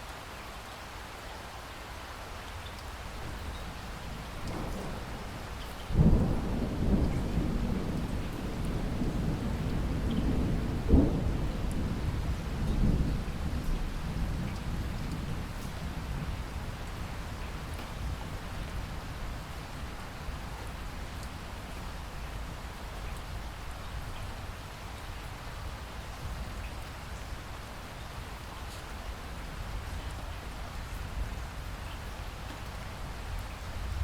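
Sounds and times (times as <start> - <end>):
rain hiss: 0.0 - 34.0
rain drop ticks: 2.4 - 18.9, 20.0 - 22.0, 28.6 - 29.1, 29.8 - 31.2.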